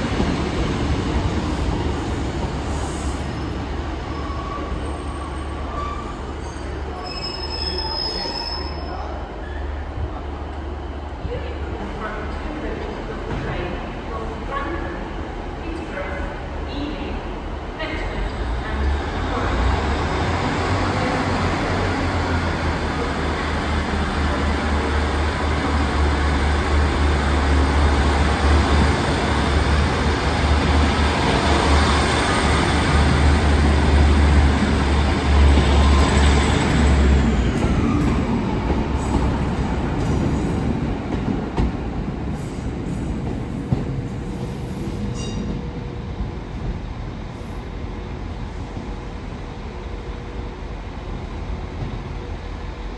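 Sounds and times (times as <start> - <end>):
train passing: 18.0 - 52.9.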